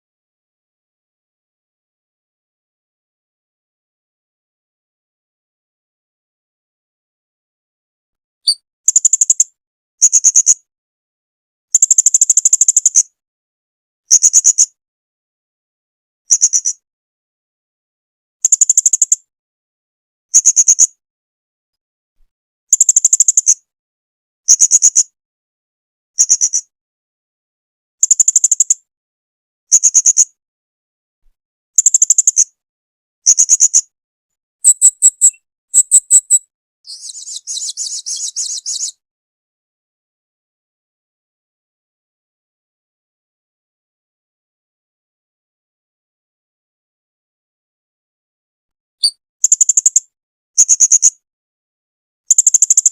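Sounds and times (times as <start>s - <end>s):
parrot high-pitched chirps: 34.6s - 38.9s.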